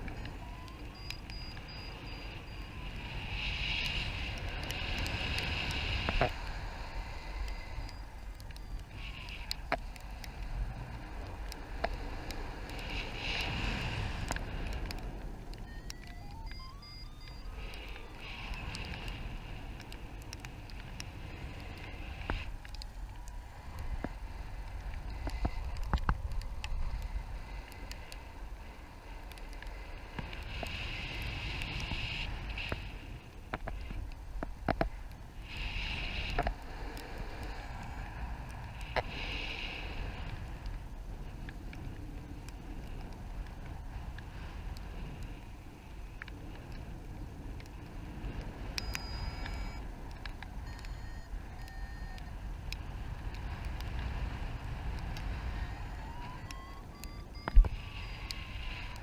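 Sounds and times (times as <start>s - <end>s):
raindrops ticking on microphone: 0.0s - 59.0s
wind rushing over microphone: 0.0s - 59.0s
high electronic beeping: 0.2s - 3.0s, 15.6s - 18.3s, 48.8s - 49.8s, 50.6s - 52.2s, 55.6s - 58.5s.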